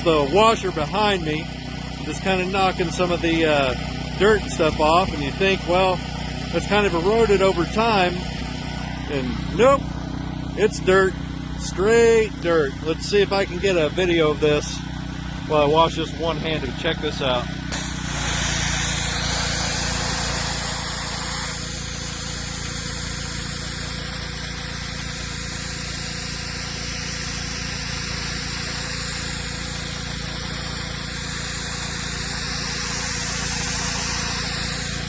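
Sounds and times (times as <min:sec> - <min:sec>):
high-pressure water jet hissing: 0:00.0 - 0:12.4, 0:16.3 - 0:35.0
pressure washer engine droning: 0:00.0 - 0:35.0.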